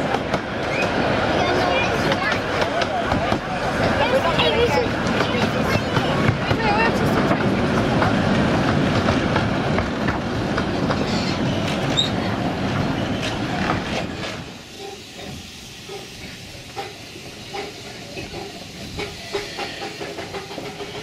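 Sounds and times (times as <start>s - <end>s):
miniature train wheels rumbling: 0.0s - 21.0s.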